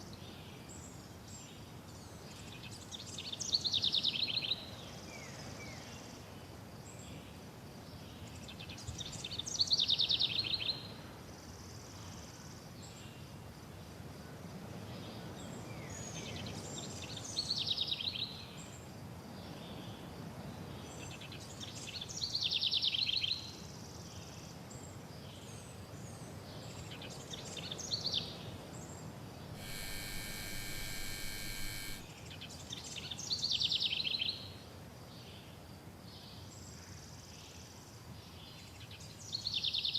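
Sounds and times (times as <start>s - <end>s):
buzzing tone: 29.6s - 32.1s.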